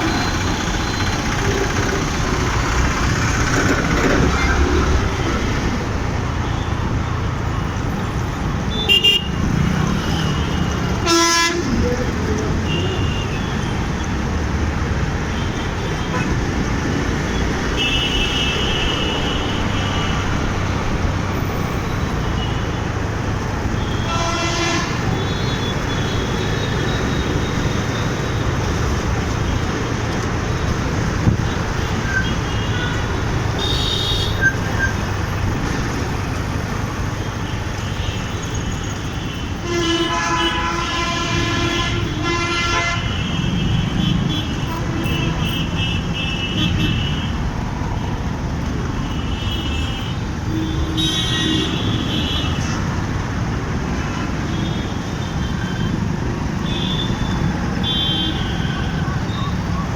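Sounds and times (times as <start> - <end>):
motorcycle engine: 0.0 - 5.6
road traffic: 0.0 - 59.9
vehicle horns honking: 8.7 - 11.8, 17.7 - 20.3, 23.7 - 27.6, 32.0 - 34.9, 38.8 - 47.3, 49.0 - 53.0, 53.9 - 59.8.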